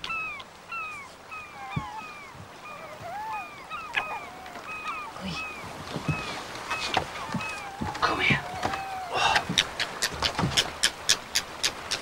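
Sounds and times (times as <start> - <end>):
soft low knocks: 1.6 - 4.7, 5.6 - 10.7.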